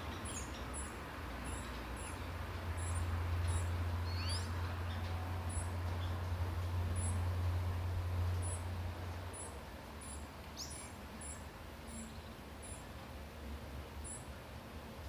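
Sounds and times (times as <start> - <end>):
songbirds high double chirps: 0.0 - 6.2, 7.0 - 7.3, 8.4 - 8.7, 9.3 - 12.9, 14.0 - 14.3.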